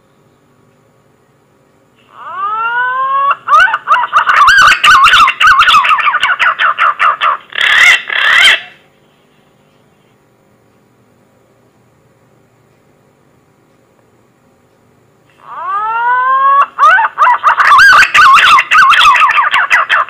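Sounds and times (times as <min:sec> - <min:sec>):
pigeon whistling call: 0:15.5 - 0:20.0.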